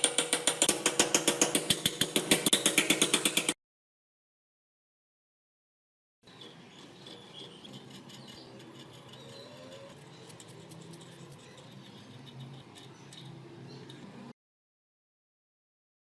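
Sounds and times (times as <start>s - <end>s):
light scraping on metal: 6.3s - 14.3s.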